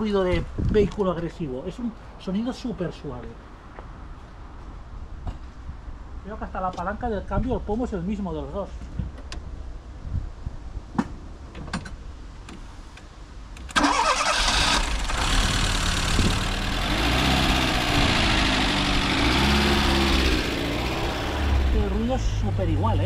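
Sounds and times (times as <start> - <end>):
car engine cranking and idling: 13.6 - 23.0.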